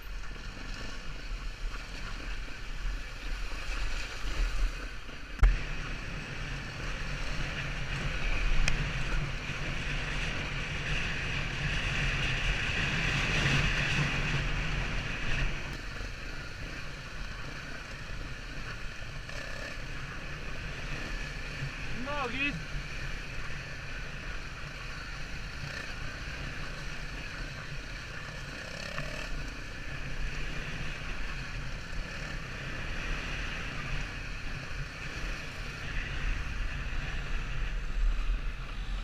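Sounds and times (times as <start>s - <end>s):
low engine hum: 0.0s - 39.0s
wind noise: 0.0s - 39.0s.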